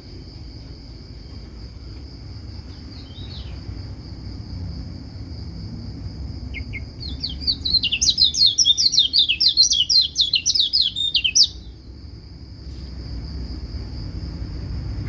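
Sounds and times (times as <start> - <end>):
high insect buzz: 0.0 - 15.0
bird twittering song: 2.6 - 3.7, 6.5 - 11.8.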